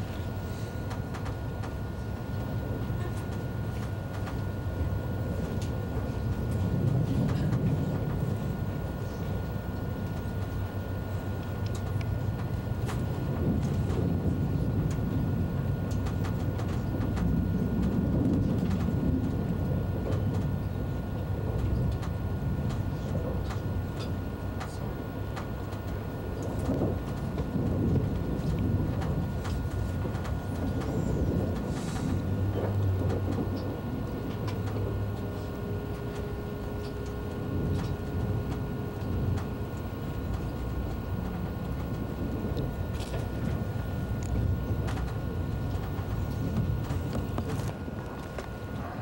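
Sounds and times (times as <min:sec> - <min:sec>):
faint steady hum: 0:00.0 - 0:49.0
train rumbling from inside: 0:00.0 - 0:49.0
light clicks and ticks: 0:11.4 - 0:14.2, 0:21.5 - 0:48.8.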